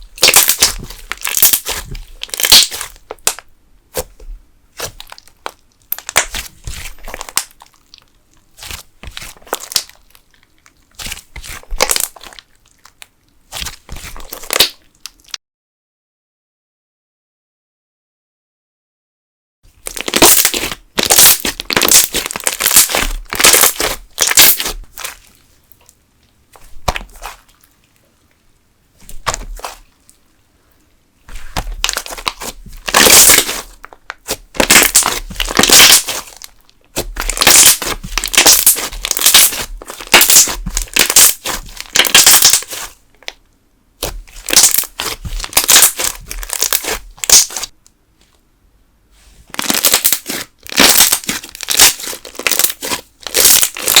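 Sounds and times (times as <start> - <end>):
slime air bubbles crackling and popping: 0.0 - 3.4, 4.8 - 8.0, 10.9 - 12.4, 19.8 - 25.3, 29.0 - 29.9, 31.3 - 43.0, 44.0 - 47.7, 49.5 - 54.0.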